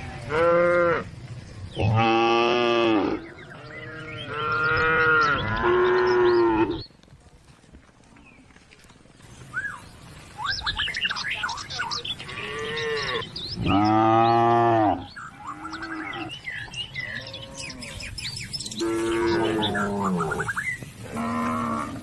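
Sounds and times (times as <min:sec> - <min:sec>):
cattle mooing: 0:01.8 - 0:06.8, 0:12.2 - 0:18.0, 0:18.8 - 0:20.4
small birds chirping rapidly: 0:02.8 - 0:07.5, 0:08.2 - 0:21.1.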